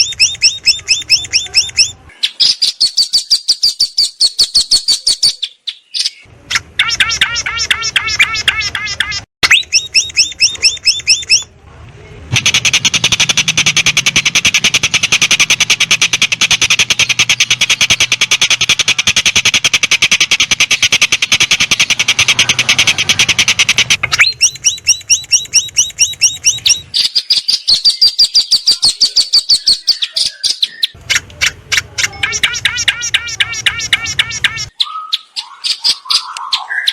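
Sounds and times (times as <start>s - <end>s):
songbird chirping: 0.0s - 36.9s.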